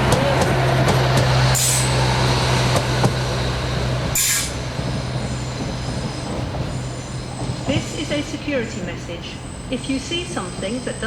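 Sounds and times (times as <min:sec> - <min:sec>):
train engine humming: 0:00.0 - 0:11.0
air hiss burst: 0:04.2 - 0:04.6.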